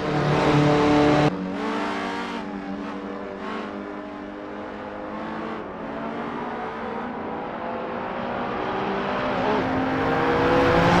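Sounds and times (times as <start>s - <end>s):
car engine accelerating: 8.4s - 11.0s.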